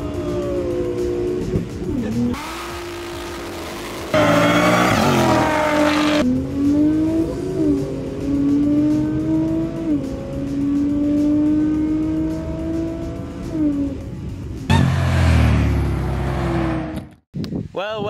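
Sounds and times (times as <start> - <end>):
car engine accelerating from cabin: 1.9 - 14.0
cars launching at full throttle: 2.4 - 9.7, 14.7 - 17.1.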